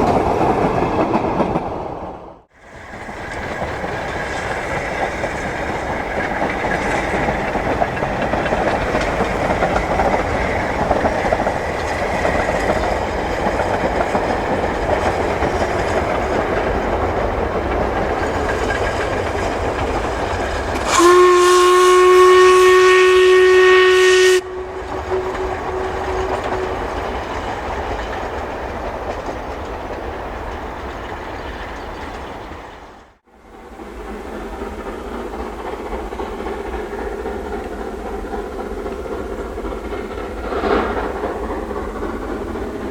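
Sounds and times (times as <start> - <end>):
steam train rumble and wheel noise: 0.0 - 42.9
steam whistle: 20.8 - 26.8.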